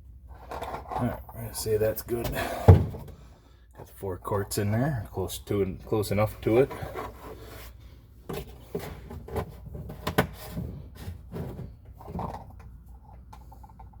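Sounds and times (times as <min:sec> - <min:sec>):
objects clicking and knocking: 0:08.3 - 0:14.0.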